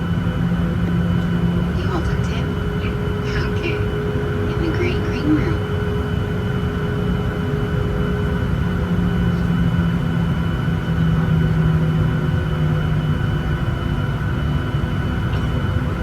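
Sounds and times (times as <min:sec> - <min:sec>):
low hum: 0:00.0 - 0:13.0
jet engine rumble: 0:00.0 - 0:16.0
thin steady whine: 0:00.1 - 0:11.3.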